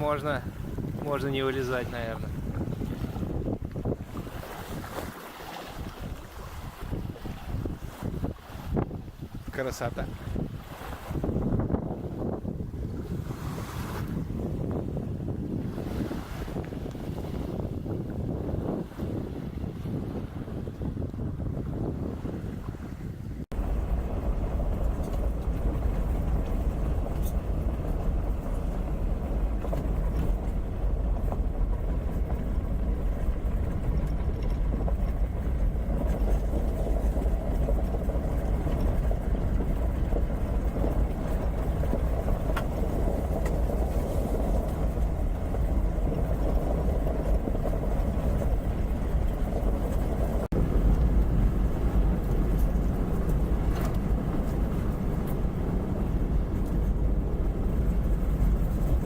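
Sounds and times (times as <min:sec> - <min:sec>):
car engine and road rumble: 0:23.4 - 0:59.0.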